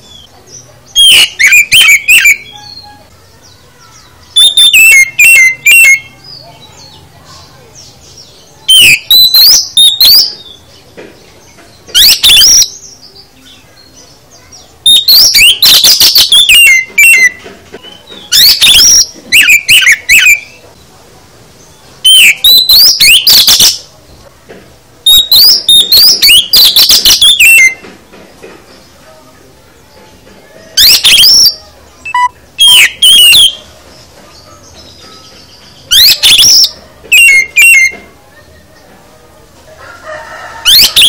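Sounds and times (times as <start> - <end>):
bird singing whistles and clicks: 8.7 - 10.6, 14.9 - 20.6, 22.0 - 23.8, 25.1 - 28.0, 30.8 - 33.6, 35.3 - 38.1.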